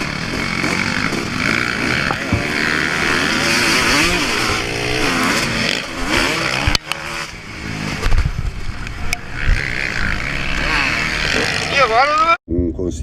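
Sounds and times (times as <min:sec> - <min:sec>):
low thumps: 0:00.0 - 0:05.7
motocross bike engine revving: 0:00.0 - 0:12.4.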